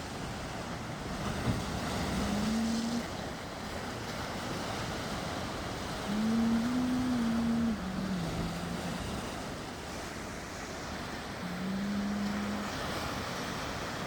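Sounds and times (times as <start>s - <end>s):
sea waves washing on shore: 0.0s - 14.0s
wind: 0.0s - 14.0s
low held tone: 6.1s - 9.1s, 11.4s - 12.8s.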